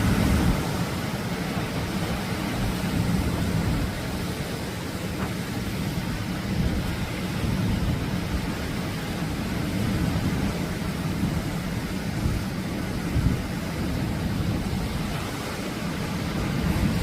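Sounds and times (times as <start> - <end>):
surf washing onto beach: 0.0 - 17.0.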